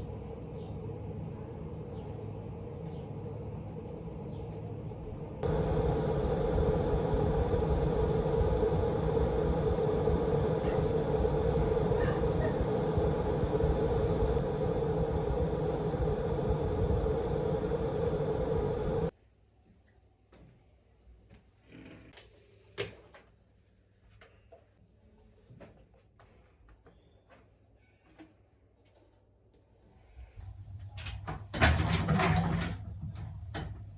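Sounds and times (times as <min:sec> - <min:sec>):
quiet steady hum: 0:00.0 - 0:19.1
vacuum cleaner motor humming: 0:05.4 - 0:19.1.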